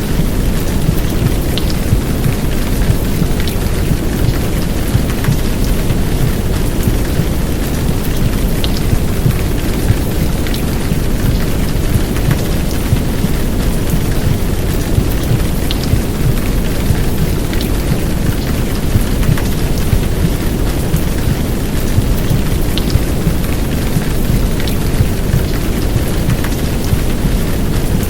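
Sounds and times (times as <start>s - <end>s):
heavy rain downpour: 0.0s - 28.0s
low dense white noise: 0.0s - 28.0s
raindrops ticking: 0.0s - 28.0s.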